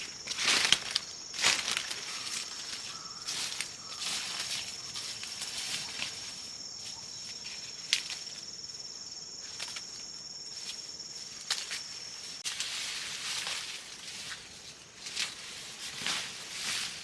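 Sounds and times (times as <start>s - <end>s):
cricket-like insect chirring: 0.0s - 12.4s.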